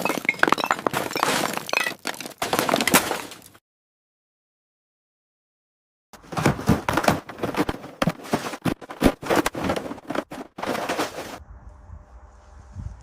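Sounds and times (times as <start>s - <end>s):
hard objects clattering: 0.0s - 3.6s, 6.2s - 11.4s.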